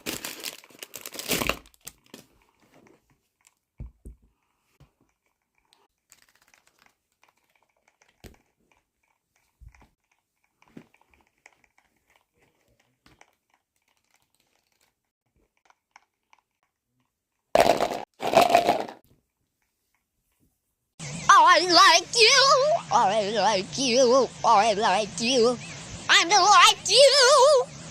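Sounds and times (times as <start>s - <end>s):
packaging crinkling and rustling: 0.0s - 3.7s.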